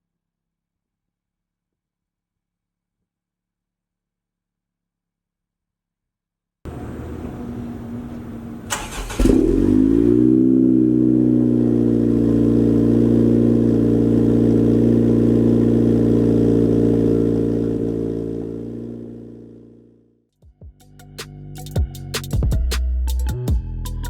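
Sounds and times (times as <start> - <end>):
car engine starting and idling: 6.7 - 19.8.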